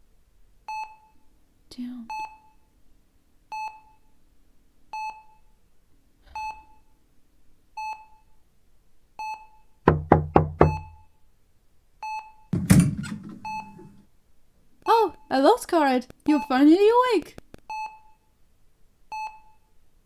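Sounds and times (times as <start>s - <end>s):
loud thump: 9.9s - 11.0s, 12.6s - 14.0s
quick knocks: 9.9s - 11.0s, 12.6s - 14.0s
heart monitor beeping: 12.6s - 14.0s.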